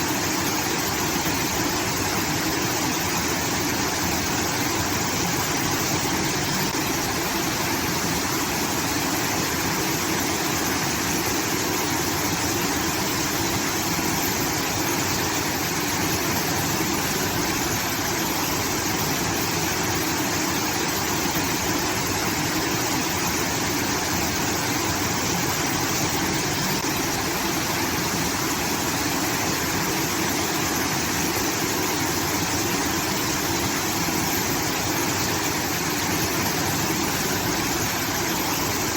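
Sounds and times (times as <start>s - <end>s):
water pouring and rushing: 0.0s - 38.9s.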